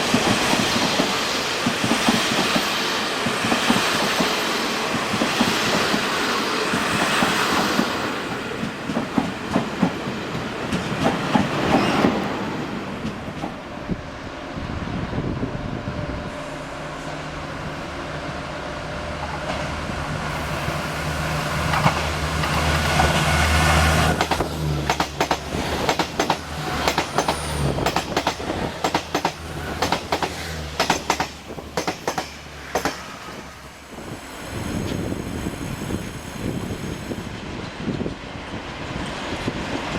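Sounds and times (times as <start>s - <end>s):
train wheels clicking over rail joints: 0.0s - 12.3s, 19.2s - 38.3s
train humming: 0.0s - 39.9s.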